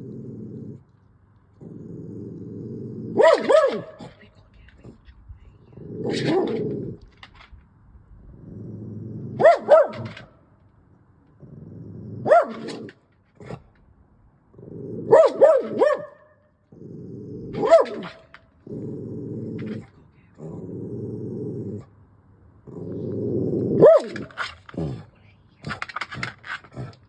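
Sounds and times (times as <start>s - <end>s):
dog growling: 0.0s - 0.9s, 1.5s - 4.2s, 5.6s - 7.2s, 8.2s - 10.2s, 11.4s - 13.8s, 14.5s - 15.9s, 16.7s - 22.0s, 22.6s - 27.0s
dog barking: 3.2s - 4.1s, 9.4s - 10.2s, 12.2s - 12.8s, 15.1s - 16.4s, 17.6s - 18.2s, 23.8s - 24.2s.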